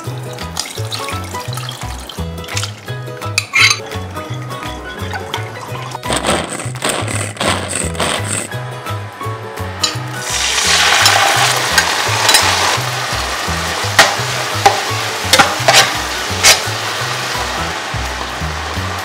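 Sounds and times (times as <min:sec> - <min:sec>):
chilies and garlic sizzling: 0:00.0 - 0:06.5, 0:09.8 - 0:19.0
background music with bass: 0:00.0 - 0:19.0
spatula knocking against pan: 0:14.0 - 0:16.6.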